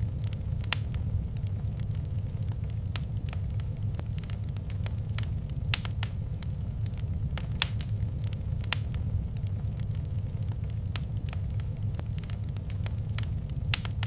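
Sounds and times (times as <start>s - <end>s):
louder fire snaps: 0.0s - 14.0s
steady low rumble: 0.0s - 14.0s
wood fire crackling: 0.0s - 14.0s.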